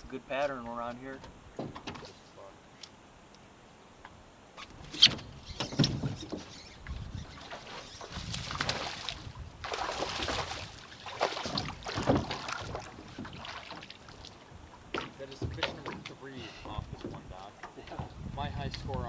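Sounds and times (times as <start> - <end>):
rustling splashy water: 4.6 - 19.0.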